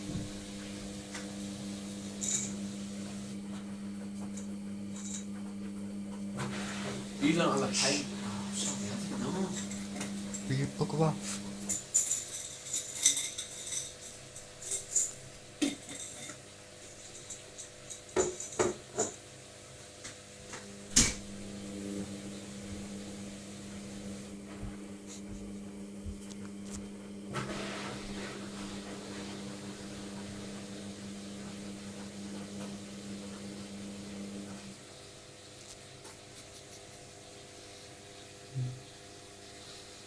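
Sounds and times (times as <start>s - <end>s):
washing machine hum: 0.0s - 40.0s
washing machine clicks and knocks: 20.9s - 21.4s.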